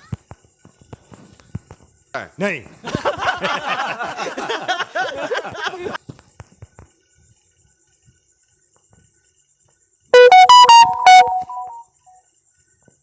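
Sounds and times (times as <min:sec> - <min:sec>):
electronic keyboard jingle: 0:10.2 - 0:11.8.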